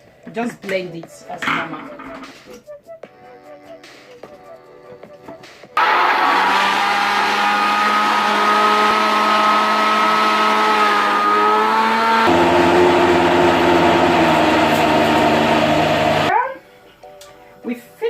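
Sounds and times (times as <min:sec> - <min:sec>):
kitchen blender running: 0:05.8 - 0:16.3.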